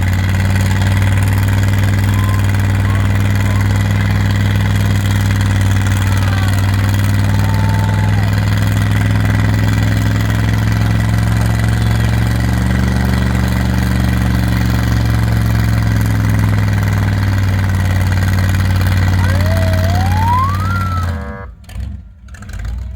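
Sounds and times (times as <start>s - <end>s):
vehicle engine idling: 0.0s - 22.9s
rising siren-like tone: 19.2s - 21.5s.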